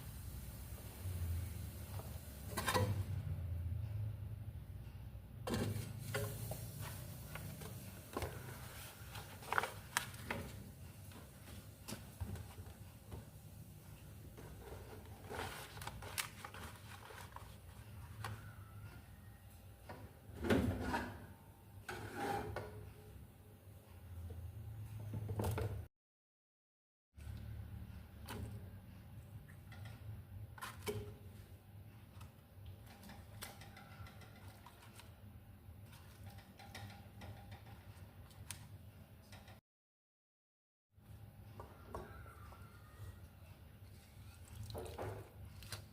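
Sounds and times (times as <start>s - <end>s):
kitchen knocks and clicks: 36.2s - 38.5s.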